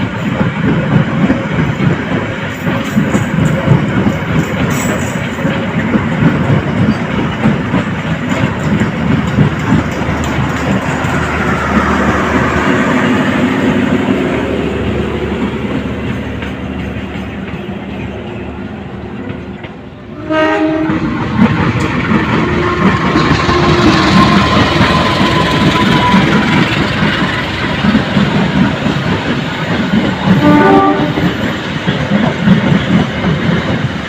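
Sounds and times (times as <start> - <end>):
train rumble and rail clatter: 0.0 - 34.0
loud train horn: 20.1 - 21.1, 22.4 - 26.6, 30.3 - 31.4.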